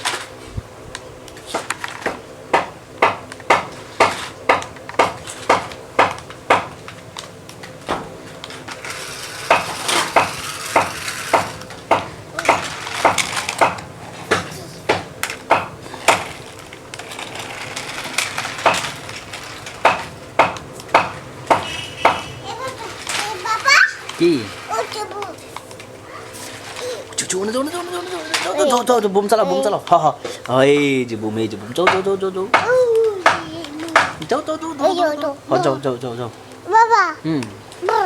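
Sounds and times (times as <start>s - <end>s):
sharp knocks: 1.5s - 6.8s, 9.4s - 16.4s, 19.8s - 22.4s, 31.8s - 34.3s.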